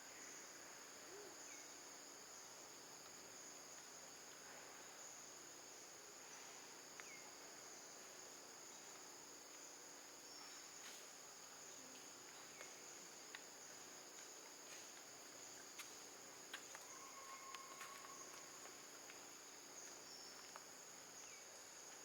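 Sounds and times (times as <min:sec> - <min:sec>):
insects chirring: 0:06.9 - 0:22.0.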